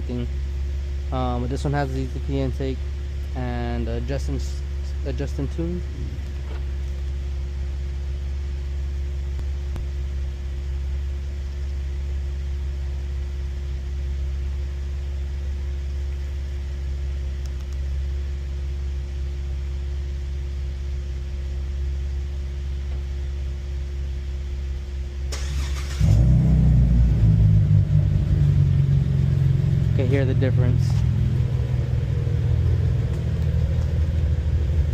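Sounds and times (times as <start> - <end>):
car engine starting and idling loudly: 0.0 - 34.9
low engine idle: 0.0 - 34.9
engine cranking: 25.3 - 26.3.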